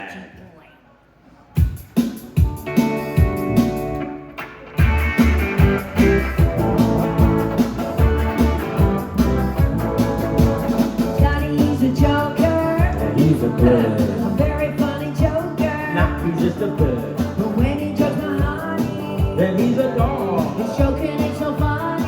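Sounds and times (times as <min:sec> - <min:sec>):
rock band playing: 0:01.9 - 0:22.0.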